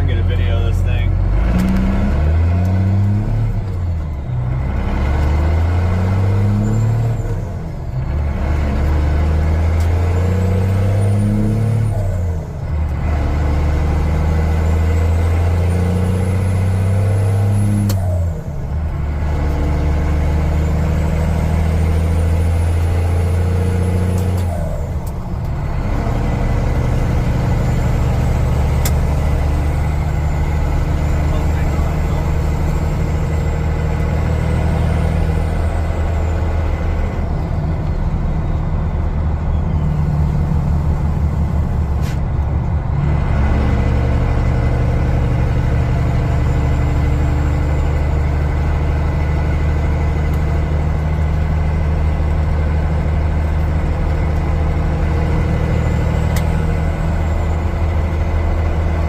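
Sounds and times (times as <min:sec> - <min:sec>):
diesel engine accelerating: 0:00.0 - 0:59.0.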